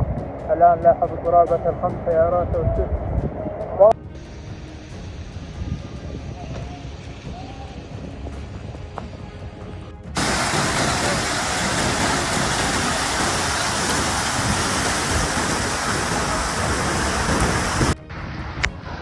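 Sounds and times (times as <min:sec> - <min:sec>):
heavy rain pouring: 0:10.1 - 0:19.0.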